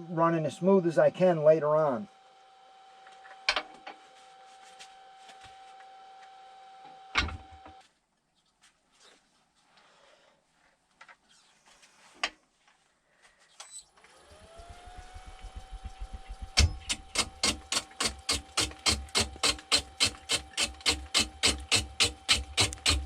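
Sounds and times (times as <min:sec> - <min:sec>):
lathe motor humming: 0:14.0 - 0:23.0.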